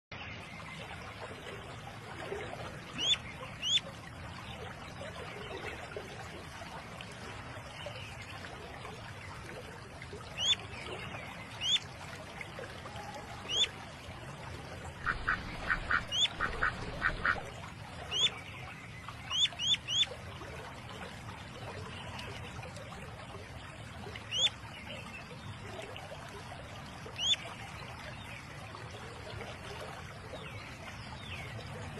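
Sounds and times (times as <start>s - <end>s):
ducks calling: 3.0s - 3.8s, 10.4s - 10.6s, 11.6s - 11.8s, 13.4s - 13.7s, 15.0s - 17.5s, 18.1s - 18.3s, 19.3s - 20.1s, 24.3s - 24.5s.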